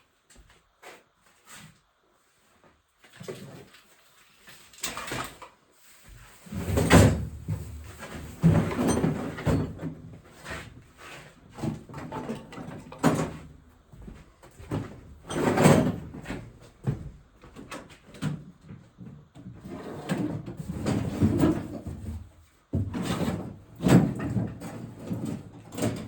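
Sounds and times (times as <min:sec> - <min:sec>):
clunks and knocks of metal parts: 0:06.5 - 0:26.0.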